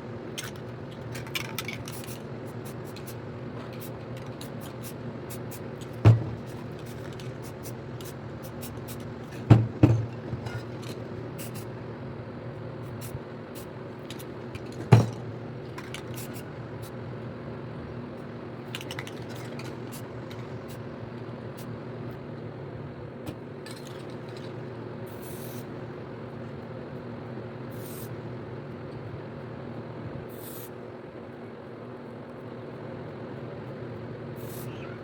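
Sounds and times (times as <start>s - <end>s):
steady low hum: 0.0s - 35.0s
spray paint can hissing: 1.8s - 11.7s, 15.9s - 16.5s, 25.1s - 25.6s, 27.7s - 28.1s, 30.3s - 30.7s, 34.4s - 34.7s.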